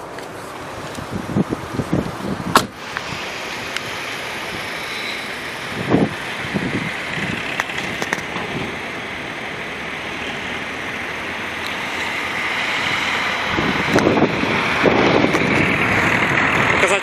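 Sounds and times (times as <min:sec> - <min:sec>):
wind gusts buffeting microphone: 0:00.0 - 0:09.9, 0:10.9 - 0:17.0
strong wind on microphone: 0:00.6 - 0:08.9, 0:12.1 - 0:17.0.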